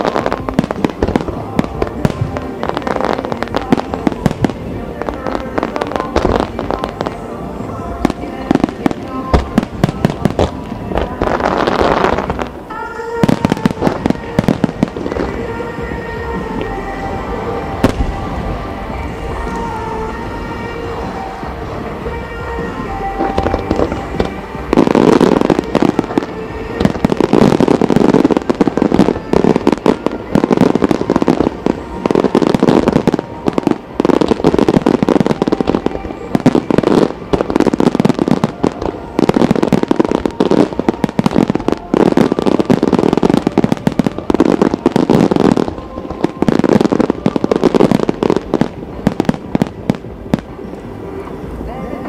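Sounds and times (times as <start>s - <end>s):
fireworks bangs and crackles: 0.0s - 52.0s
music playing: 0.0s - 52.0s.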